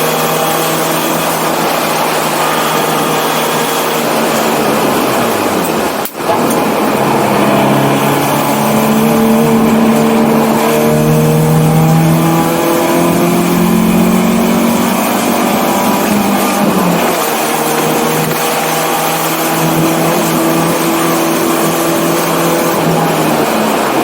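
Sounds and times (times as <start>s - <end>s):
race car engine pulling hard: 0.0s - 24.0s.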